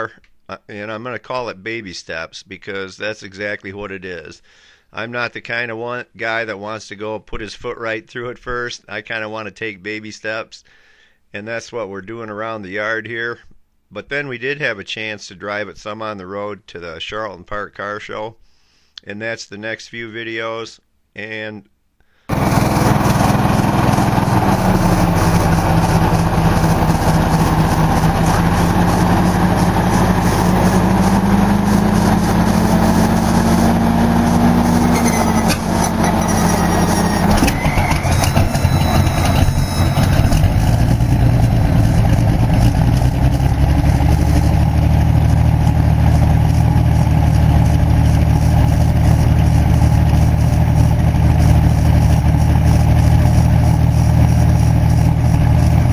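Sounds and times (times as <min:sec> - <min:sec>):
aircraft engine running: 0:22.3 - 0:55.9.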